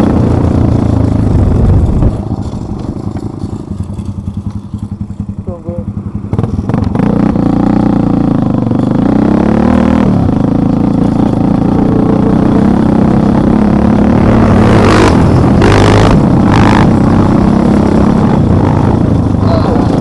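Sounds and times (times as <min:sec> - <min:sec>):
vehicle engine revving: 0:00.0 - 0:20.0.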